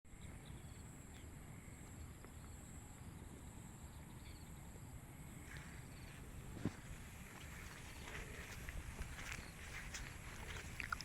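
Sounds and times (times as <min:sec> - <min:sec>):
high insect drone: 0:00.2 - 0:11.0.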